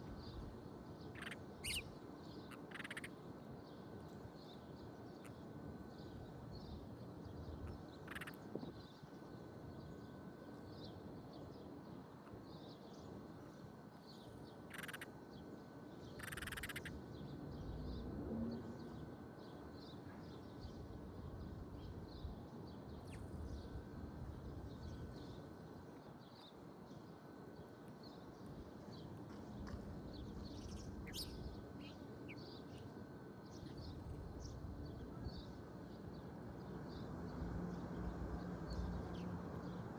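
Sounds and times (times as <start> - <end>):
small birds chirping: 0.1 - 3.2, 4.0 - 9.0, 14.1 - 15.1, 16.1 - 16.9, 21.8 - 23.8, 26.3 - 37.1.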